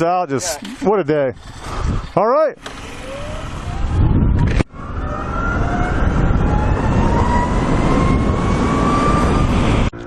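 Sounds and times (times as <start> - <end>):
wind rush: 0.5 - 2.2, 3.2 - 10.0.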